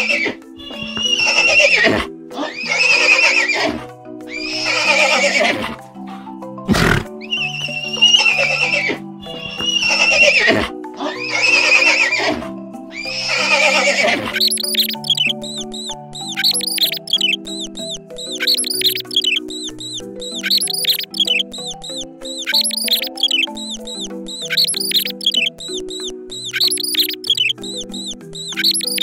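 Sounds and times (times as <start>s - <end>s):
horse whinnying: 0.0s - 5.8s, 6.7s - 14.4s
background music: 0.0s - 29.0s.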